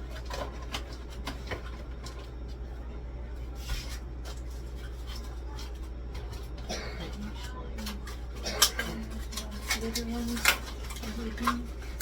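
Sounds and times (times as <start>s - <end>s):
items knocking and clicking: 0.0s - 2.6s
fridge hum: 0.0s - 12.0s.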